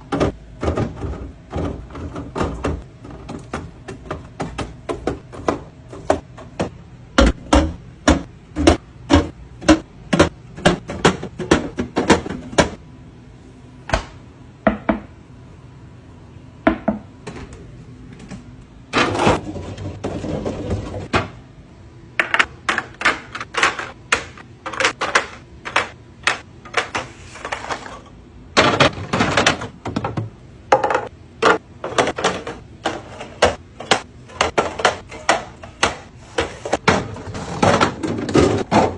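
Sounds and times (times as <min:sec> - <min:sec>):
plastic containers clicking and knocking: 0:00.0 - 0:12.8, 0:22.2 - 0:27.9, 0:28.6 - 0:38.9.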